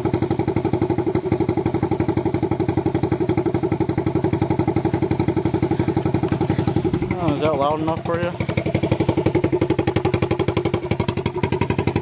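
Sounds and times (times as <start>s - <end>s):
engine idling with loud exhaust: 0.0s - 12.0s.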